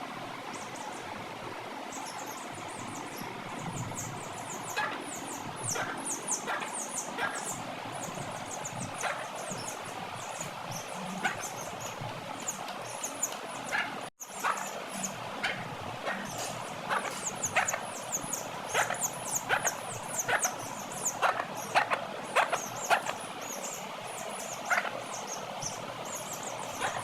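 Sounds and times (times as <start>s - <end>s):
small birds chirping: 1.9s - 27.0s
sharp bird peeps: 13.0s - 23.2s.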